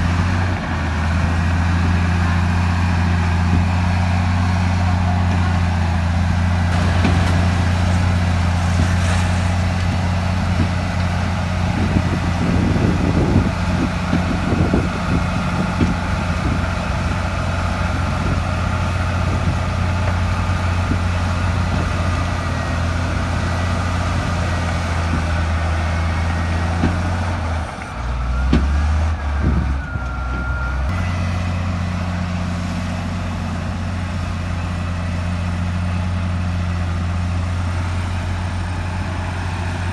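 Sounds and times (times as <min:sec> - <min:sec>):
bulldozer diesel engine running: 0:00.0 - 0:39.9
knocks and clanks: 0:06.7 - 0:08.0.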